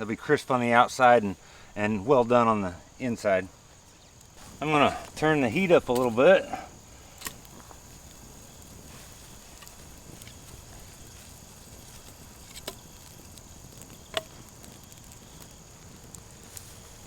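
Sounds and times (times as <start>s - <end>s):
campfire hissing: 0.0s - 17.0s
fire popping: 0.0s - 17.0s.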